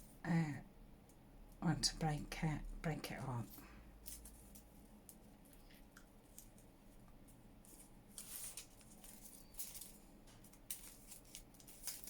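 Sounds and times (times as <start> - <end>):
paper rustling: 4.0 - 12.0.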